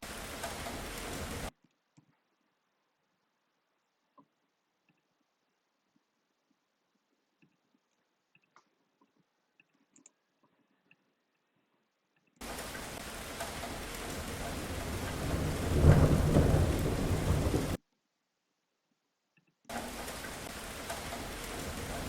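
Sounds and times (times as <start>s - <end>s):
steady rain: 0.0s - 1.6s, 12.4s - 17.8s, 19.7s - 22.0s
rolling thunder rumble: 12.4s - 17.8s, 19.8s - 22.0s.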